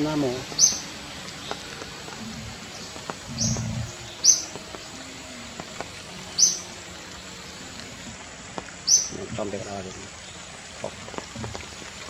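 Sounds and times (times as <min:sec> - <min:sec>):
bird chirping: 0:00.0 - 0:05.0, 0:06.2 - 0:06.8, 0:08.8 - 0:11.6
low rumble: 0:03.3 - 0:04.0.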